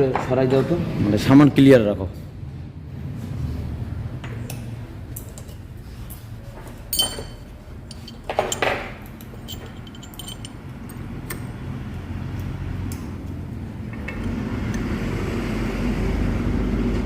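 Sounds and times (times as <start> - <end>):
metal scraping: 6.9 - 11.0
metal parts clinking: 6.9 - 11.5.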